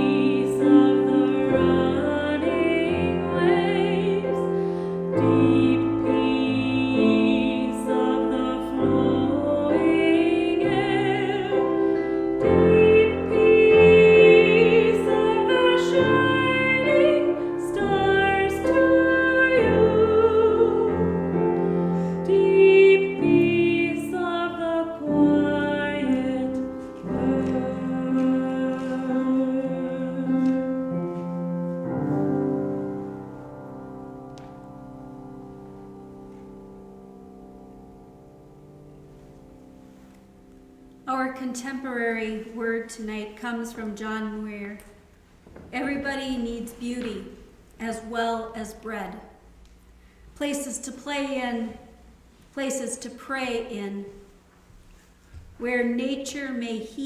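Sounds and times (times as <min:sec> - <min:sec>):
piano accompaniment: 0:00.0 - 0:42.9.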